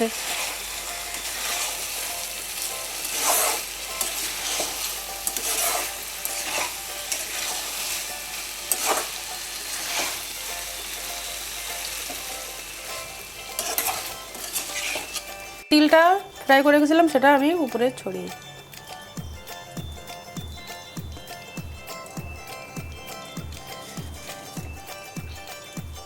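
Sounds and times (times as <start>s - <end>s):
chicken sizzling in a pan: 0.0s - 15.6s
scraping against pan: 3.0s - 7.8s, 8.7s - 9.1s, 13.5s - 15.4s.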